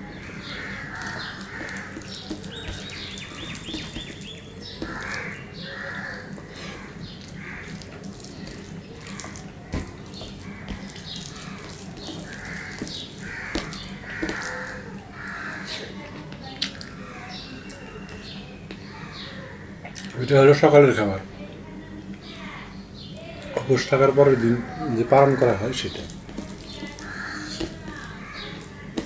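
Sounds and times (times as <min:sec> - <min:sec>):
wet open-mouth chewing: 0:00.6 - 0:15.9, 0:16.6 - 0:18.3, 0:25.9 - 0:29.0.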